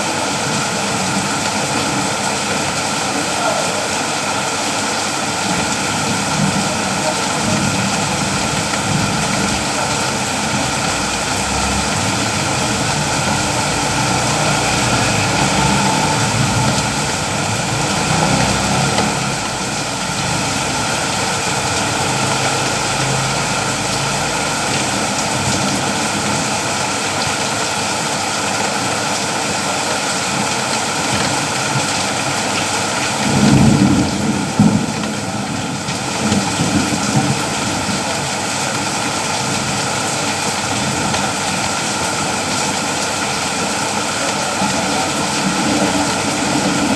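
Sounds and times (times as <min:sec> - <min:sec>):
steady rain hiss: 0:00.0 - 0:46.9
low thunder rumble: 0:06.1 - 0:25.8.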